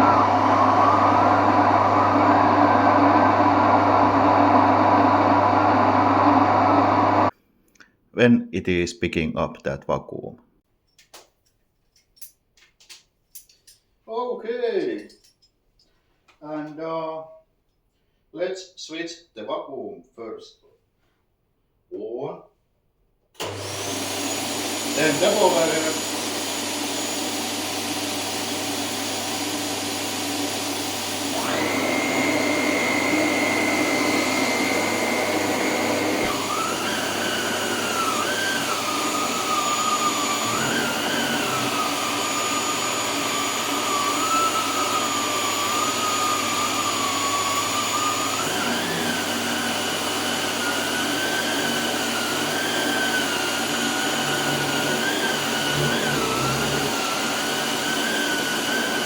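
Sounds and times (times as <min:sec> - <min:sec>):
vacuum cleaner running: 0:00.0 - 0:07.3, 0:23.4 - 0:59.0.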